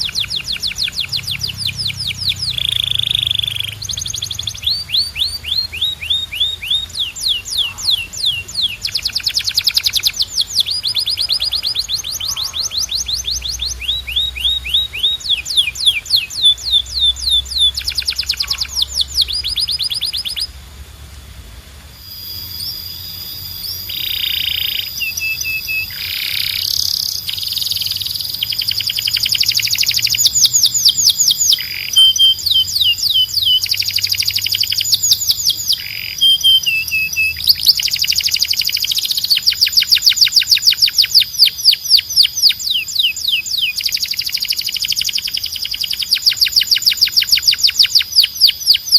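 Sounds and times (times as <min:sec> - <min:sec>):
canary singing trills: 0:00.0 - 0:20.6, 0:22.0 - 0:48.9.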